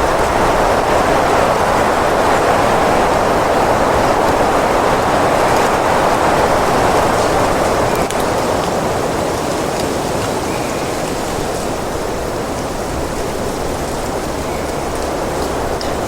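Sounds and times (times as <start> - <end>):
wind blowing: 0.0 - 16.0.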